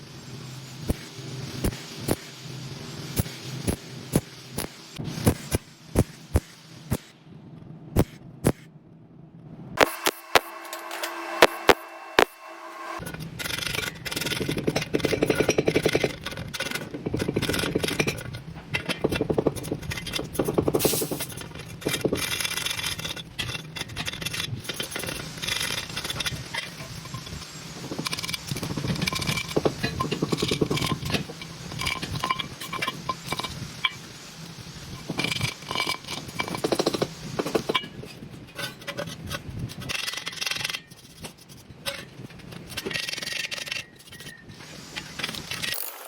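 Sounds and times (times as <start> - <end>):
welding arc crackling: 0.0 - 7.2, 9.8 - 41.2.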